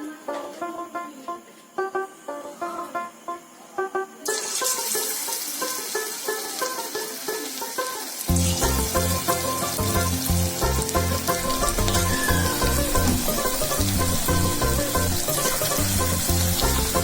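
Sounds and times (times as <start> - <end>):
music with plucked melody: 0.0 - 17.0
food sizzling in hot oil: 4.2 - 17.0
heavy bass beat: 8.3 - 17.0.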